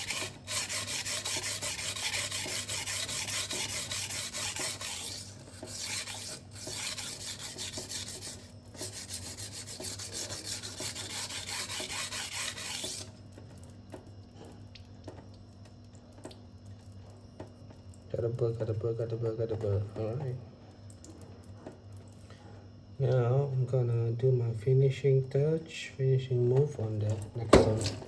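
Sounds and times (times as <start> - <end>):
knife scraping on sharpening stone: 0.0 - 8.4, 9.8 - 13.1.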